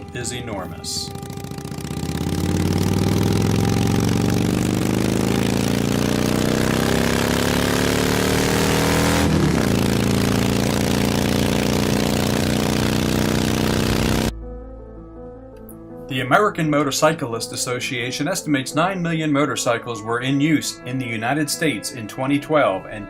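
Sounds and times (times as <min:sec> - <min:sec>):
motorcycle engine accelerating: 0:00.0 - 0:14.3.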